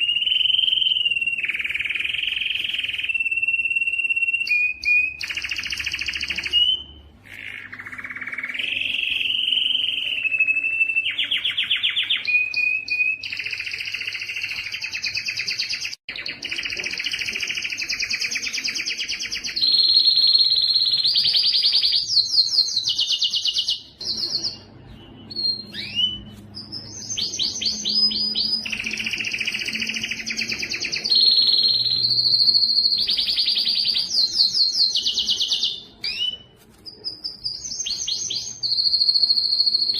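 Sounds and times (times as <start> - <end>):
canary chirps: 0.0 - 39.9
canary singing trills: 0.0 - 39.9.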